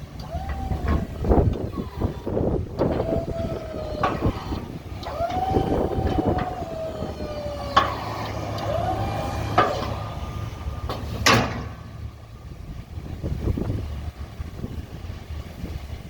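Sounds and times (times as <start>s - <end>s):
plow blade clunk: 0.0s - 12.2s
hydraulic pump motor whining: 0.0s - 12.5s.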